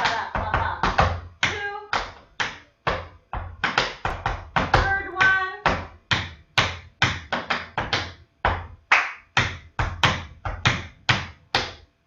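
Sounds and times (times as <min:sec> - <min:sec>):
tap shoes on hard floor: 0:00.1 - 0:08.8, 0:09.4 - 0:11.8.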